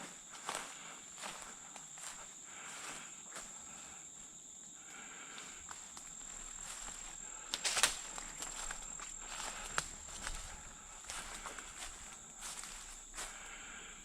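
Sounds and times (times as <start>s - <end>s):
twigs cracking: 6.0s - 12.7s
footsteps through dry leaves: 6.6s - 13.7s.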